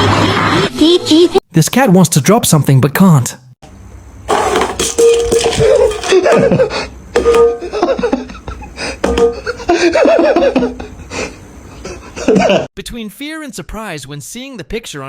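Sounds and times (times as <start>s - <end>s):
person laughing: 5.6s - 6.9s, 7.6s - 12.7s.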